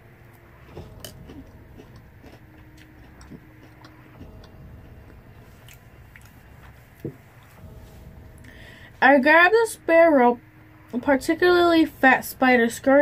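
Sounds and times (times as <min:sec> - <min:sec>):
chewing crunchy cereal: 0:00.4 - 0:07.5.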